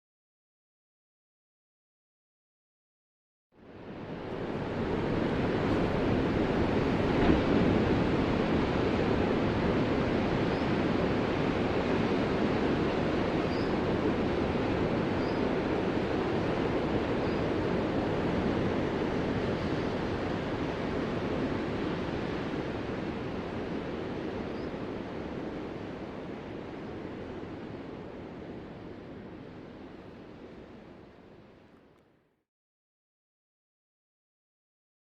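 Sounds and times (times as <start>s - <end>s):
ocean surf: 3.6s - 31.5s.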